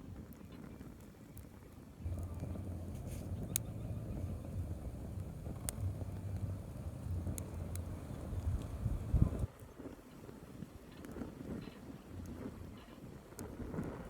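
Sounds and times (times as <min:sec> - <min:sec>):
campfire popping and crackling: 0:00.0 - 0:14.0
wind buffeting microphone: 0:02.0 - 0:10.0.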